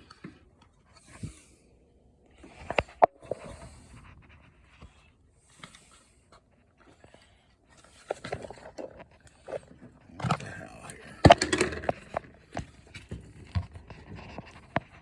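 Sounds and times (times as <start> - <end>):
handling clicks and knocks: 8.2 - 15.0.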